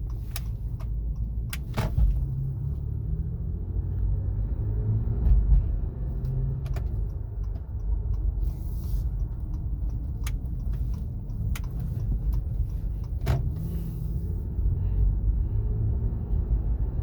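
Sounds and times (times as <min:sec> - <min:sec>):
car road rumble inside: 0:00.0 - 0:17.0.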